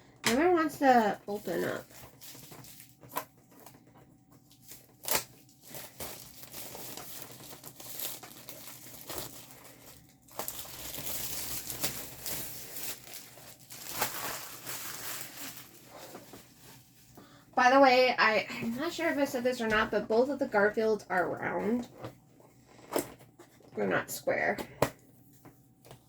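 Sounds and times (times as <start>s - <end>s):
plastic packaging crinkling: 0.5s - 17.3s.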